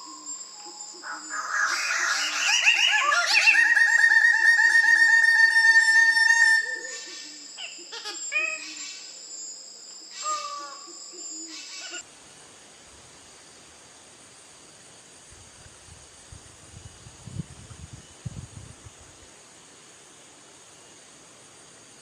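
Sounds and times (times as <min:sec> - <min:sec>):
bird trilling call: 0:01.0 - 0:09.0.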